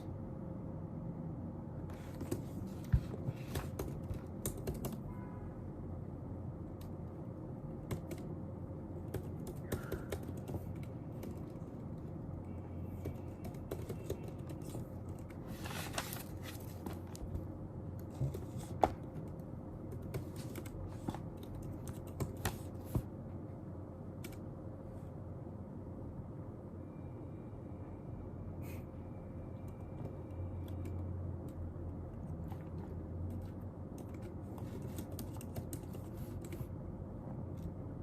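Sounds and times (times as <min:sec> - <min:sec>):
steady low hum: 0:00.0 - 0:38.0
keyboard typing clicks: 0:03.4 - 0:05.1, 0:07.8 - 0:08.3, 0:09.0 - 0:11.6, 0:12.8 - 0:15.4, 0:33.3 - 0:36.7.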